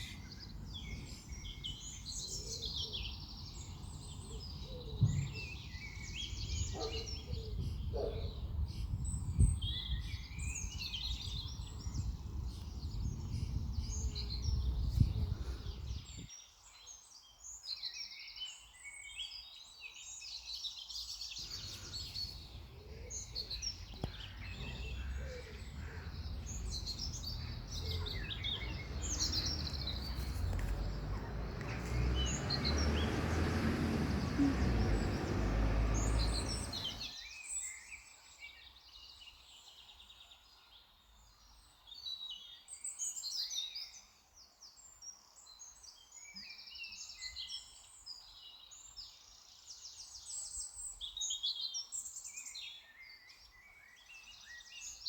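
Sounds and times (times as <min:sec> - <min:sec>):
small birds chirping and singing: 0:00.0 - 0:40.8.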